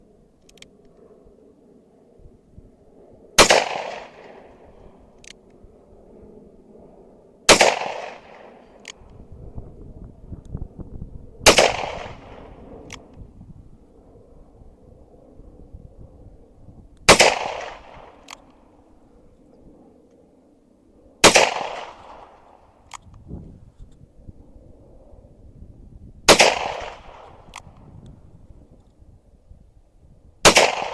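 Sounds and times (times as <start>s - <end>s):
handgun shots: 7.5s - 9.0s, 11.5s - 13.0s.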